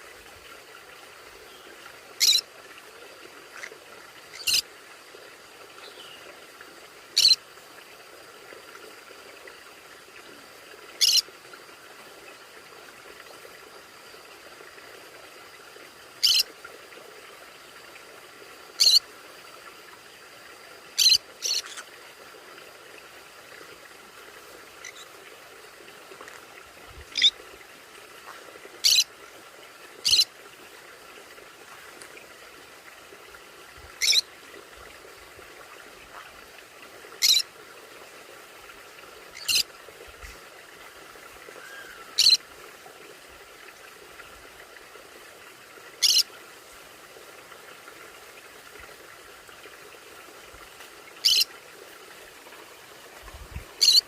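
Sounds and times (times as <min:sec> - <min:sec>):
faint steady background noise: 0:00.0 - 0:54.0
parrots high-pitched calls: 0:02.2 - 0:02.4, 0:03.5 - 0:03.7, 0:04.3 - 0:04.6, 0:07.2 - 0:07.4, 0:11.0 - 0:11.2, 0:16.2 - 0:16.4, 0:18.8 - 0:19.0, 0:21.0 - 0:21.9, 0:27.1 - 0:27.3, 0:28.8 - 0:29.0, 0:30.0 - 0:30.3, 0:34.0 - 0:34.2, 0:37.2 - 0:37.4, 0:39.4 - 0:39.6, 0:41.6 - 0:42.4, 0:46.0 - 0:46.2, 0:51.2 - 0:51.5, 0:53.8 - 0:54.0.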